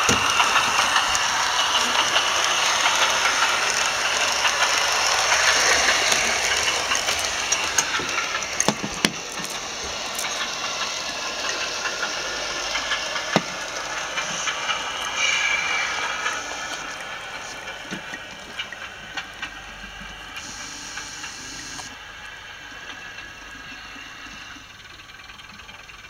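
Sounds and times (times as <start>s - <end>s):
diesel railcar engine sound: 0.0s - 26.0s
model train rattling on track: 0.0s - 26.0s.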